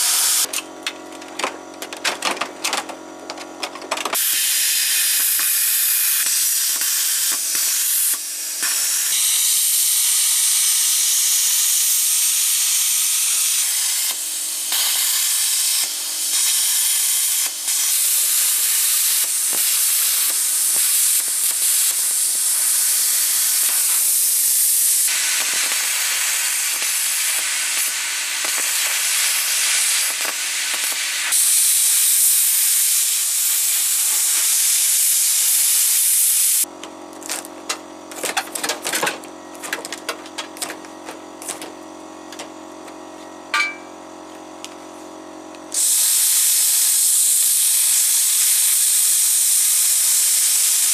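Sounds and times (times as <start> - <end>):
plasma cutter arc hissing: 0.0 - 0.7, 4.1 - 36.7, 45.7 - 50.9.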